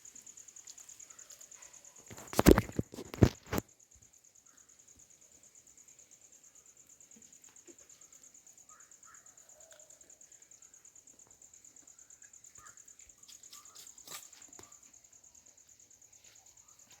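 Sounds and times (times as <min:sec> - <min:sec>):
insect trilling: 0:00.0 - 0:17.0
faint bird chirps: 0:03.8 - 0:05.4, 0:06.2 - 0:17.0.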